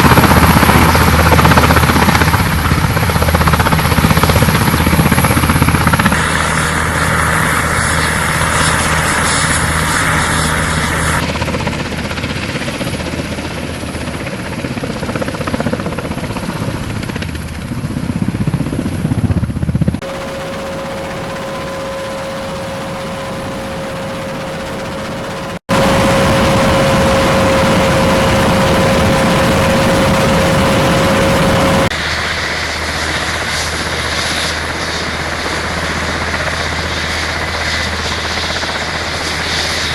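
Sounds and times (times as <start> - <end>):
helicopter rotor noise: 0.0 - 39.9
high turbine whine: 20.0 - 35.4.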